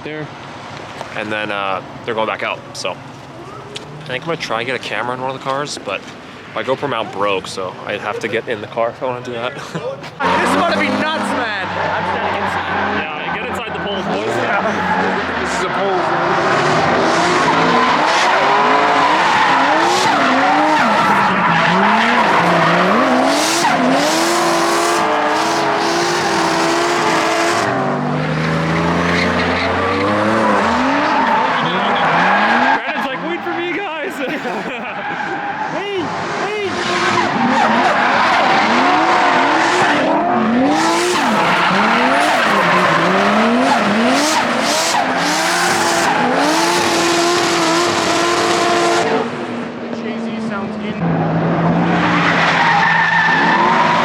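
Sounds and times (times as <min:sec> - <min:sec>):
car engines revving: 0:00.0 - 0:54.0
tyres squealing: 0:09.8 - 0:27.8, 0:28.4 - 0:48.9.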